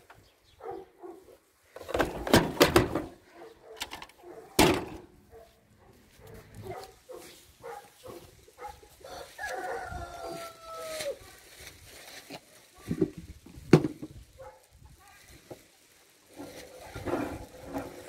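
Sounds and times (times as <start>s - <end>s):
washing machine being broken apart: 1.8s - 3.1s.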